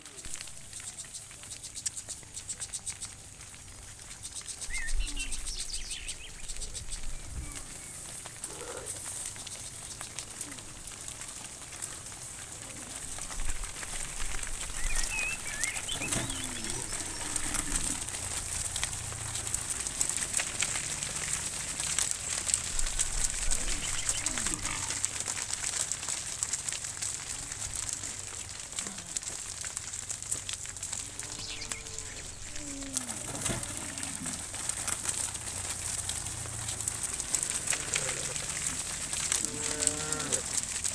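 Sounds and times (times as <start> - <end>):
small bird chirps: 4.1 - 8.0, 31.2 - 32.8
cows mooing: 8.3 - 9.2, 15.0 - 25.5, 30.9 - 35.7, 36.7 - 40.8.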